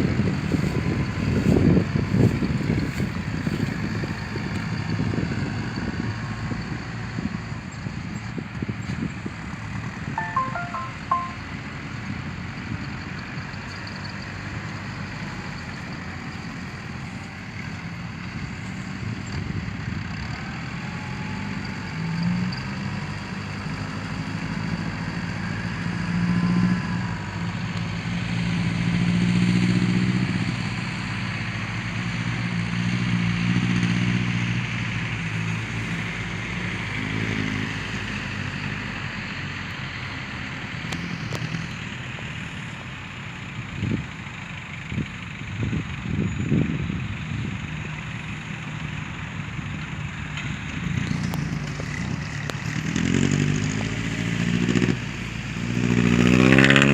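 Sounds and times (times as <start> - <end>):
diesel truck engine revving: 48.4 - 56.9.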